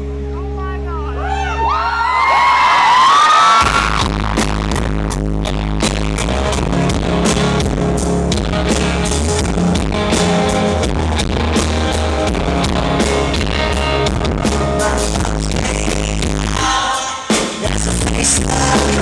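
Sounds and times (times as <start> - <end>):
rock band playing live: 3.6 - 19.0.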